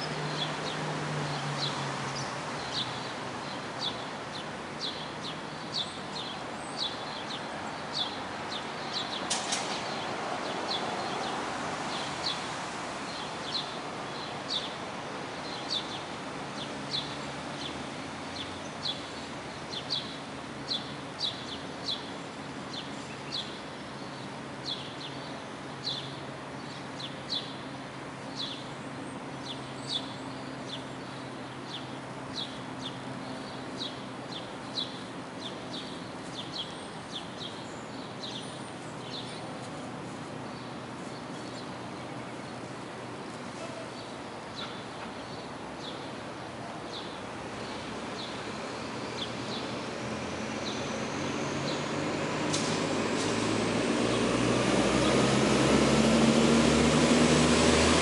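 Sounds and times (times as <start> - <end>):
bird chirping: 29.4 - 42.6, 43.6 - 46.2.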